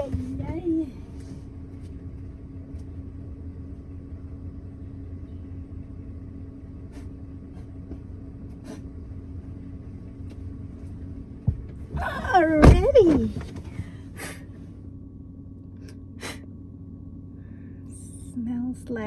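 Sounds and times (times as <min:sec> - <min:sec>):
car engine idling: 0:00.0 - 0:19.0
thump: 0:11.4 - 0:13.8.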